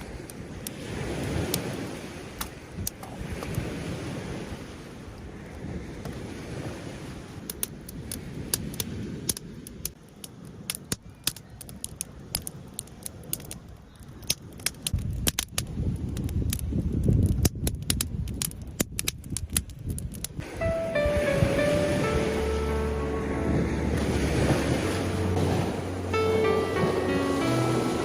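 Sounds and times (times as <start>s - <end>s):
sharp clicks and crackles: 8.8s - 20.4s
low rumble: 22.3s - 28.0s.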